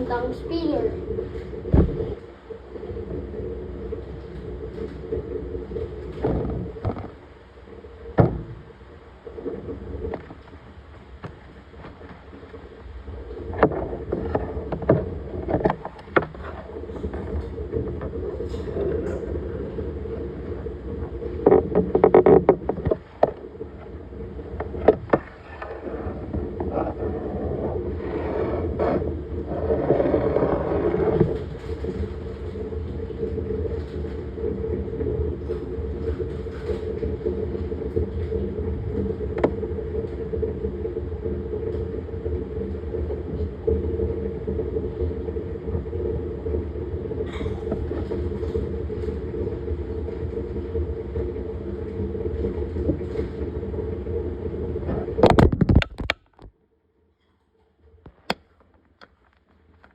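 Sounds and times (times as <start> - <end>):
water swishing: 0.0 - 55.4
washing machine motor hum: 0.0 - 56.5
clicks and knocks: 54.9 - 56.5.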